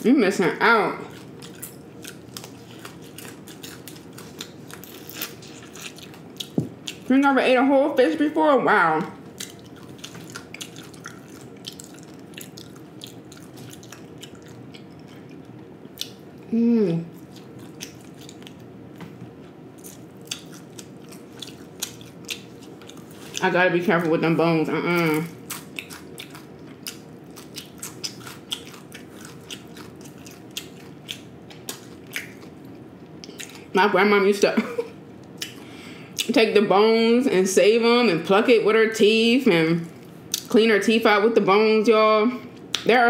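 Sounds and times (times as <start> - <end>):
person chewing food: 1.1 - 7.1, 9.2 - 16.4, 17.1 - 23.4, 25.3 - 33.7, 35.2 - 36.3.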